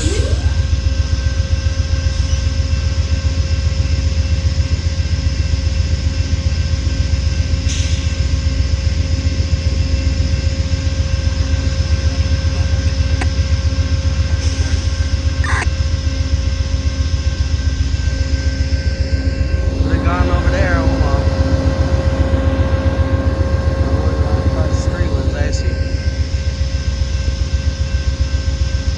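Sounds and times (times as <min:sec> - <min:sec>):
diesel locomotive idling: 0:17.9 - 0:26.4.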